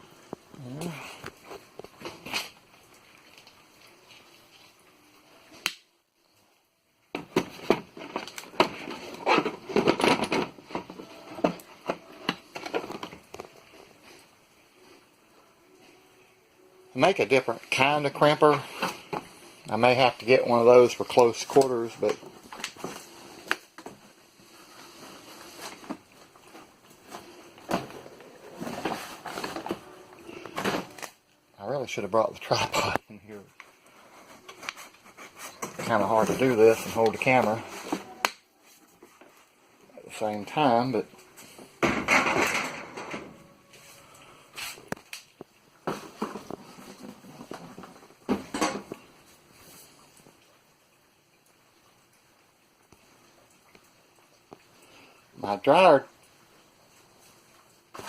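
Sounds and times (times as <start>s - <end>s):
objects knocking and rustling: 7.1s - 14.3s, 17.7s - 31.2s, 33.6s - 39.5s, 41.2s - 43.8s, 44.8s - 50.3s
tool parts clicking and clattering: 7.2s - 13.2s.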